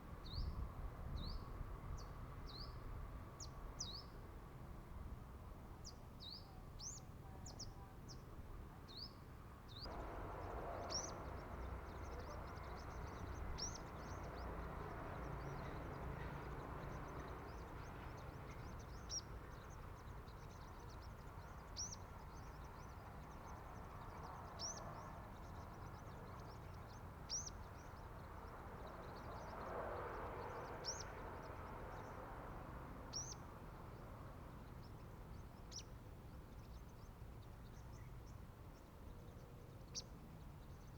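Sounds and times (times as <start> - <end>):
steady background hiss: 9.9 - 11.9.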